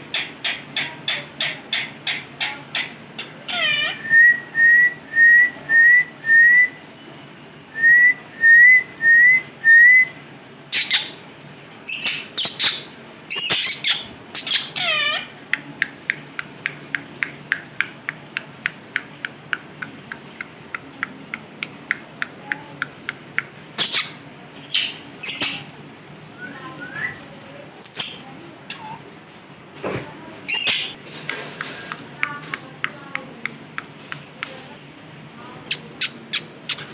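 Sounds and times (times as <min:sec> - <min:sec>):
parrot clicking chirps: 0:00.1 - 0:04.0, 0:10.7 - 0:11.2, 0:11.9 - 0:25.8, 0:27.8 - 0:29.0, 0:30.5 - 0:31.0, 0:35.7 - 0:36.9
parrot squawking: 0:00.1 - 0:04.4, 0:10.7 - 0:11.2, 0:11.9 - 0:15.4, 0:23.8 - 0:25.7, 0:27.8 - 0:29.1, 0:30.5 - 0:31.0.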